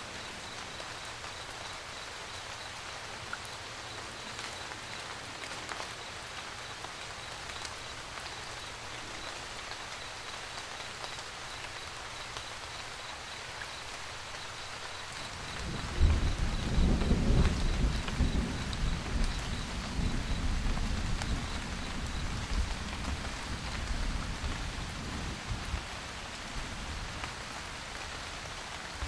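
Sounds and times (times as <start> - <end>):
rain falling: 0.0 - 29.0
thunder rumble: 15.4 - 25.5.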